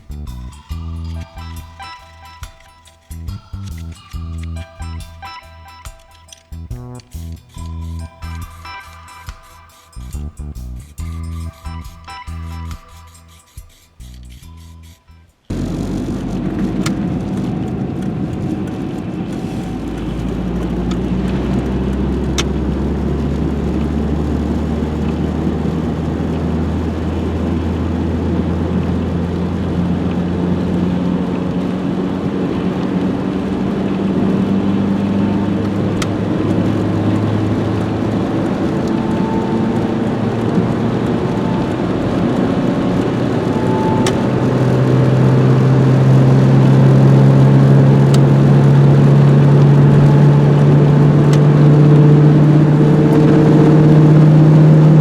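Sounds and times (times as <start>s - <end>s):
car engine running: 14.4s - 55.0s.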